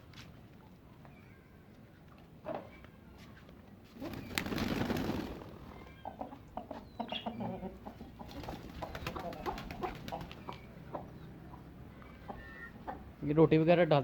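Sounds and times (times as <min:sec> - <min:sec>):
wing flapping: 0:04.0 - 0:05.6, 0:08.2 - 0:10.5
bird calls: 0:05.7 - 0:13.1.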